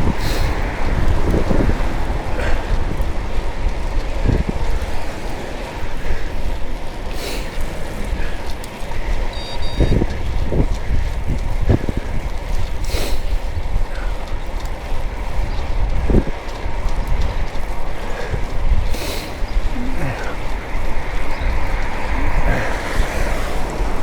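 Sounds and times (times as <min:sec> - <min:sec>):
vehicle rumble: 0:00.0 - 0:24.0
wind buffeting microphone: 0:00.0 - 0:24.0
short high electronic beep: 0:09.3 - 0:09.9.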